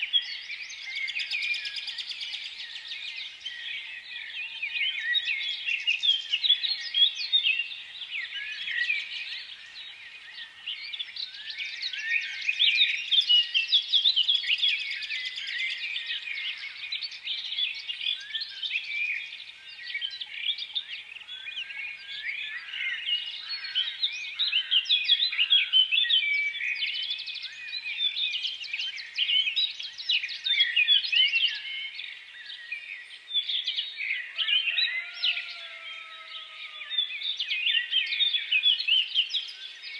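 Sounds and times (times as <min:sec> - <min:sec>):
flock of small birds chirping: 0:00.0 - 0:39.9.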